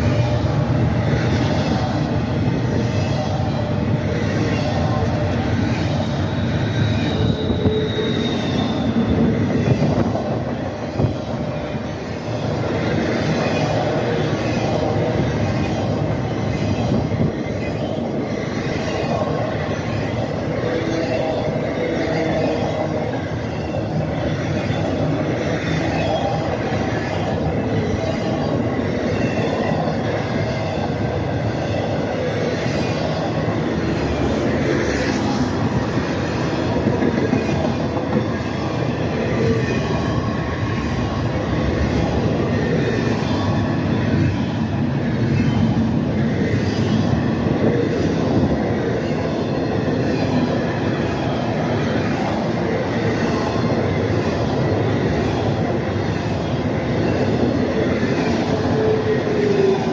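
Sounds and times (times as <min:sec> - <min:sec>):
high wheel squeal: 0:00.0 - 0:59.9
train wheels rumbling on rails: 0:00.0 - 0:59.9.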